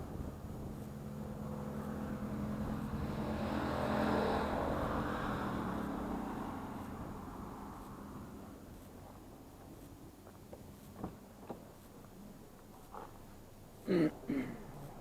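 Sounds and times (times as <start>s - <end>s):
car driving past: 1.1s - 6.8s.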